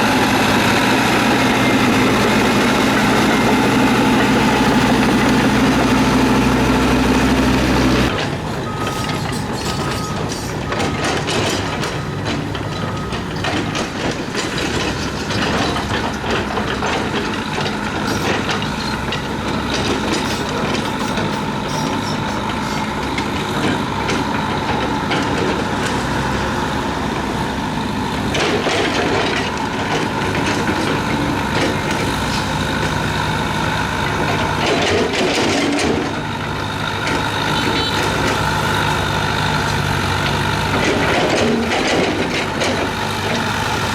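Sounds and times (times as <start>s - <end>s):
diesel engine hum: 0.0s - 43.9s
rattling clanks: 0.5s - 26.3s
reversing alarm beeping: 1.6s - 13.7s, 20.0s - 23.1s.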